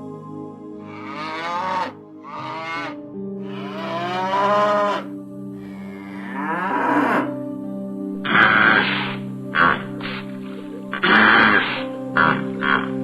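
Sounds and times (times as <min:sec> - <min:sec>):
soft background music: 0:00.0 - 0:13.0
cow mooing: 0:00.9 - 0:07.4, 0:08.2 - 0:10.1, 0:10.9 - 0:13.0.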